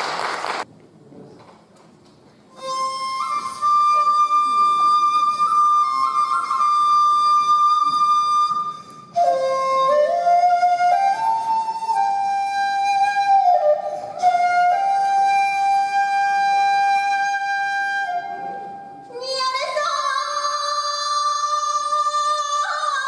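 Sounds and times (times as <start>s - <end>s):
flute melody: 2.5s - 19.2s.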